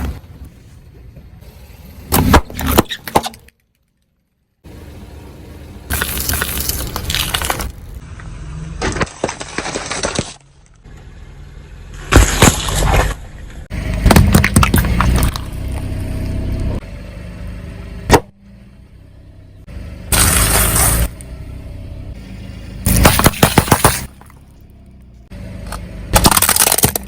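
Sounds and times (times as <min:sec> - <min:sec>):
objects being crushed crunching: 0:05.9 - 0:08.0, 0:08.8 - 0:10.8, 0:12.0 - 0:15.8, 0:22.8 - 0:24.6, 0:26.1 - 0:27.0
sharp crack: 0:22.8 - 0:24.5, 0:26.1 - 0:27.0.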